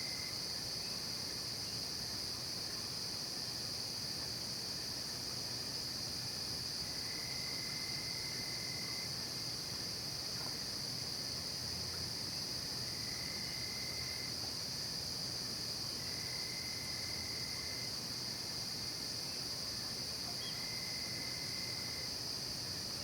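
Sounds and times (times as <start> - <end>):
lower insect trill: 15.8 - 23.0.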